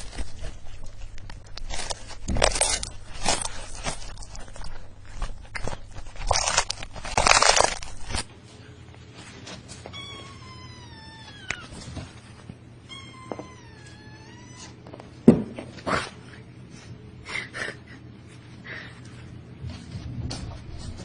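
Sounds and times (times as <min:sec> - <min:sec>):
cat meowing: 0:09.9 - 0:11.9, 0:12.8 - 0:14.8.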